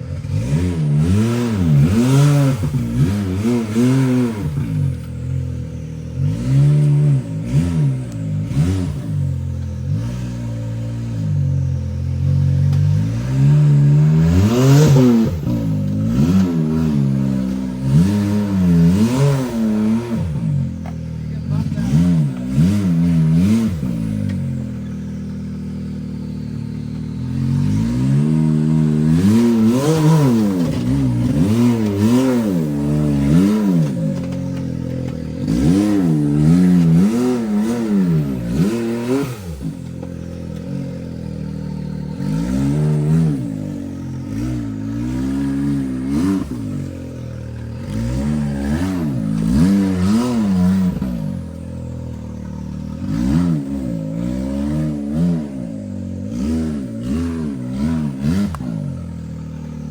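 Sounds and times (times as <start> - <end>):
buggy engine revving: 0.0 - 59.9.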